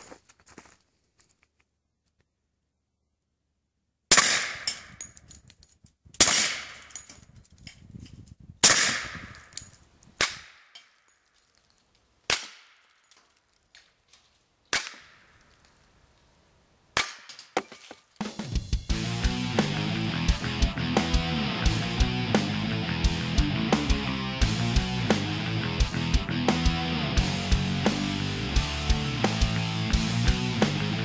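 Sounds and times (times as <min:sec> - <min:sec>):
suppressed pistol shots: 0:04.1 - 0:04.9
music: 0:18.3 - 0:31.0.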